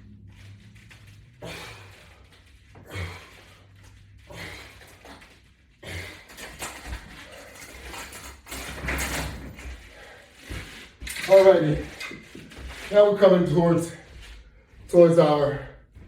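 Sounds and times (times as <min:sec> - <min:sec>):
person breathing with effort: 0:00.1 - 0:08.1, 0:09.7 - 0:11.0.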